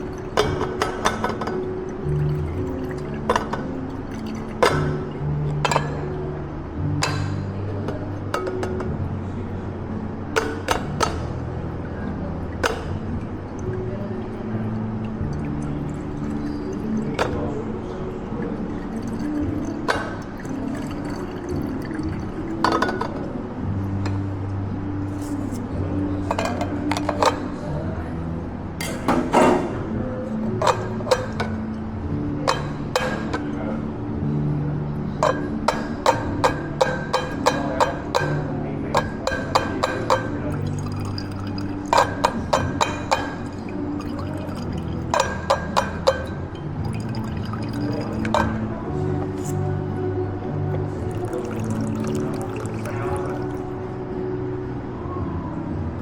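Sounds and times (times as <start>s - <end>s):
liquid being poured: 0.0s - 6.0s, 12.6s - 23.2s, 39.0s - 48.7s, 50.9s - 53.8s
glassware clinking: 0.0s - 6.2s, 7.0s - 9.0s, 12.6s - 13.1s, 15.3s - 17.6s, 18.4s - 23.3s, 26.2s - 27.6s, 28.8s - 29.8s, 30.6s - 31.6s, 32.4s - 33.5s, 35.2s - 48.7s, 50.9s - 53.8s.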